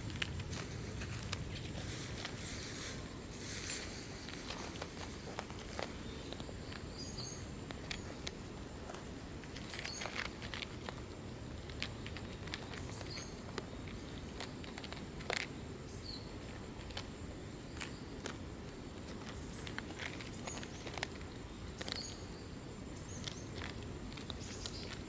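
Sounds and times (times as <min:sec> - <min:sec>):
steady low rumble: 0:00.0 - 0:14.4.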